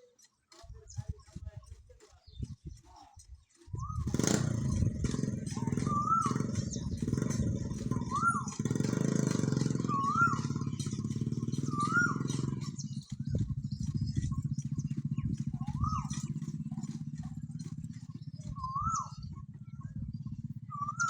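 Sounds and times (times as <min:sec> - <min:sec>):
engine running with low pulse: 0:00.0 - 0:21.0
whistled call rising and falling: 0:05.8 - 0:06.4, 0:09.8 - 0:10.6, 0:11.7 - 0:12.4, 0:20.7 - 0:21.0.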